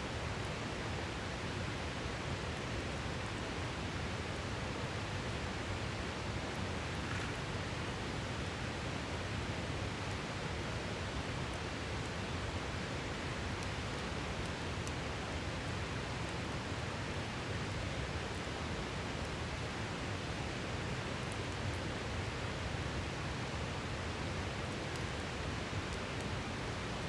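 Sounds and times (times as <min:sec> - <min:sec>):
campfire crackling: 0:06.3 - 0:09.2.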